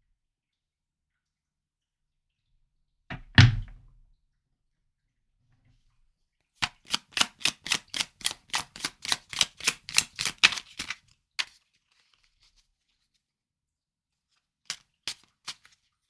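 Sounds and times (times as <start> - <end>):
cards being shuffled: 6.6 - 12.2.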